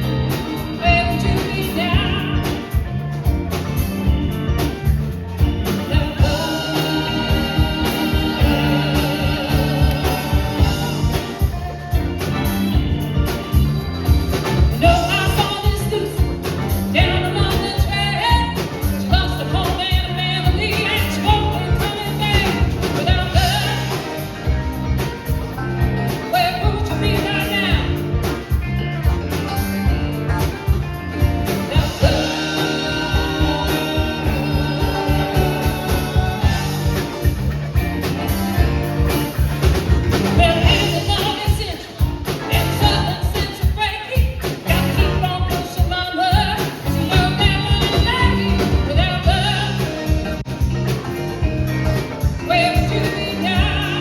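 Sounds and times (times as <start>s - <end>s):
live rock band playing: 0.0s - 54.0s
lead vocal singing: 5.4s - 12.6s, 14.5s - 24.3s, 31.2s - 38.4s, 40.2s - 50.2s, 52.4s - 54.0s.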